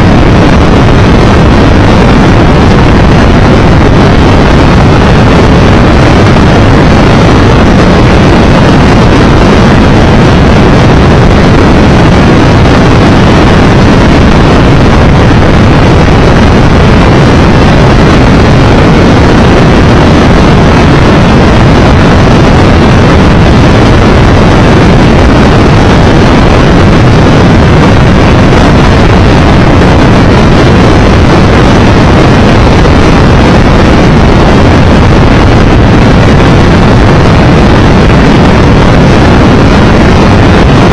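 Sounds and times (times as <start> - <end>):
wind noise on microphone: 0.0 - 40.9.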